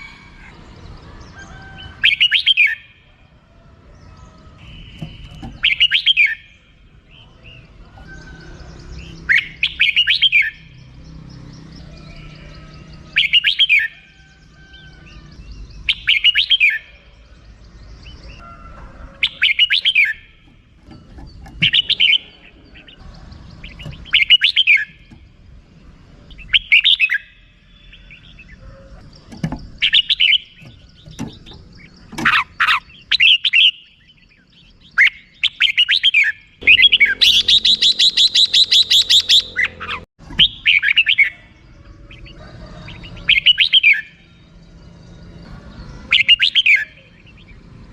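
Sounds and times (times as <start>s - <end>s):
bird chattering call: 4.3s - 6.7s, 26.3s - 42.3s.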